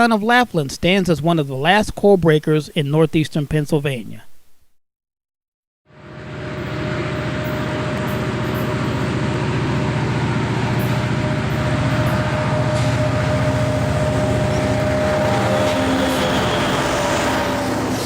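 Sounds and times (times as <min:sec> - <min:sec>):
mid-pitched whine: 0:05.9 - 0:18.0
train running: 0:06.0 - 0:18.0.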